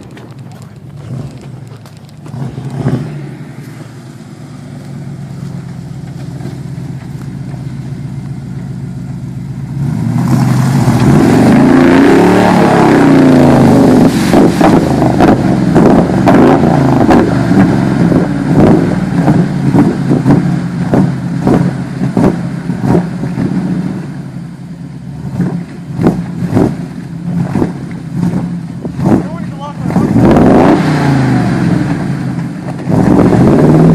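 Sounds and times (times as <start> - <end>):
truck engine revving: 0.0 - 33.9.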